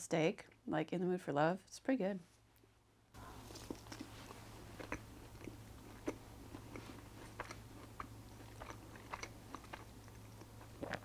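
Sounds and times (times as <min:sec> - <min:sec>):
faint low hum: 0:00.0 - 0:11.0
wet chewing and crunching: 0:03.2 - 0:11.0.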